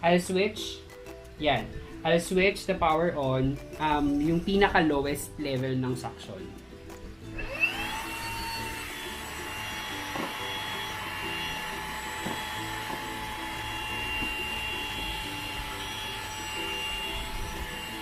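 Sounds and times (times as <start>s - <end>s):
handheld vacuum motor whine: 7.3s - 18.0s.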